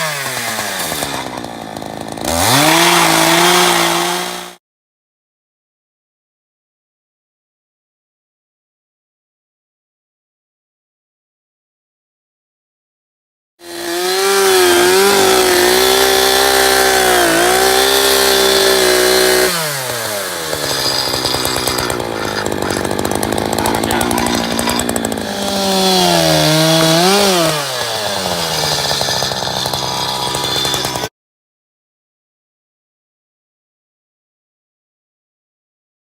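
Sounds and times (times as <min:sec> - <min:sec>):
chainsaw revving: 0:00.0 - 0:04.6, 0:13.6 - 0:31.1.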